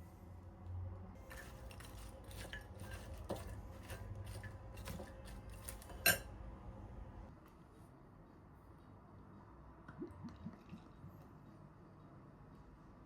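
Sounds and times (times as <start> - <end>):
utensils and dishes clinking: 1.2 - 6.3.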